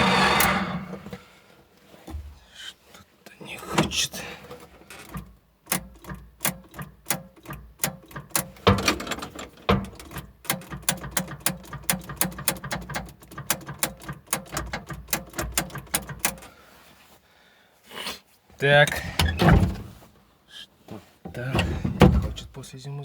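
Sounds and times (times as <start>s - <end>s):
starter slowly cranking diesel engine: 0.0s - 1.1s.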